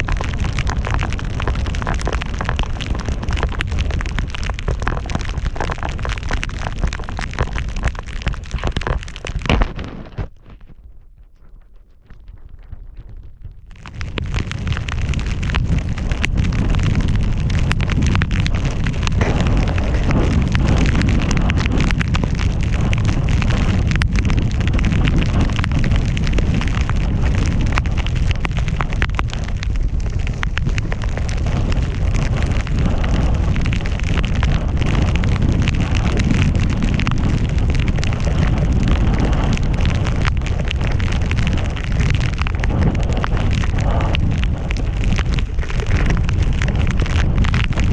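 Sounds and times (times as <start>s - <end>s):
wind buffeting microphone: 0.0s - 47.9s
snow spraying and sliding: 14.6s - 47.9s.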